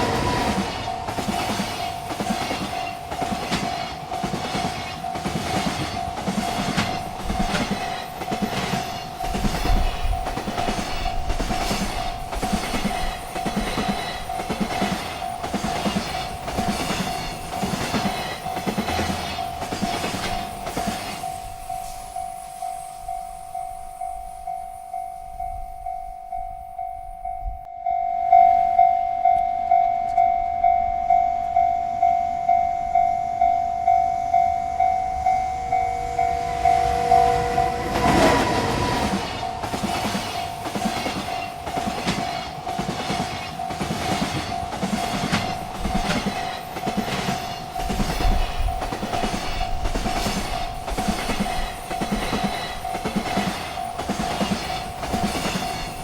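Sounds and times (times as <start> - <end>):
train horn: 0.0 - 1.2, 34.0 - 40.6
train cars clattering over rails: 0.0 - 21.8, 34.8 - 56.0
railroad crossing bell dinging: 0.0 - 56.0.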